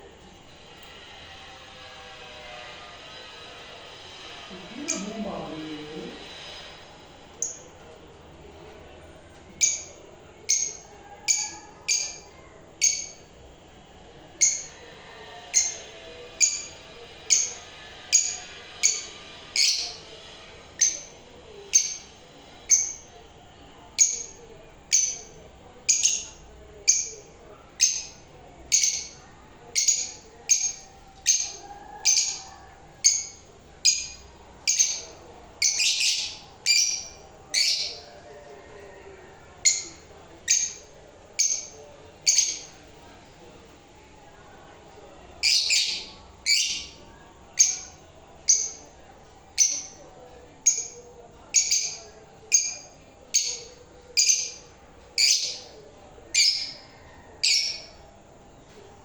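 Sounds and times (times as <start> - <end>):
lovebirds chirping shrilly: 15.6 - 20.1, 33.0 - 38.1, 45.4 - 47.0, 55.2 - 55.7.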